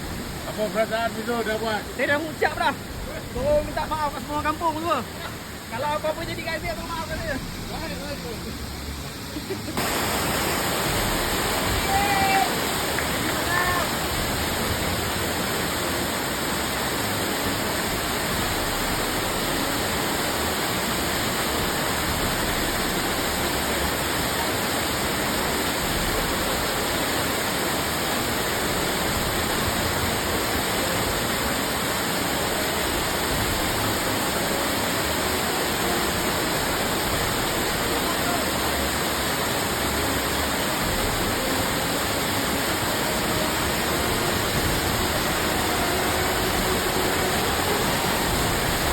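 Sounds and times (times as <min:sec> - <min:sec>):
waterfall roaring: 0:00.0 - 0:48.9.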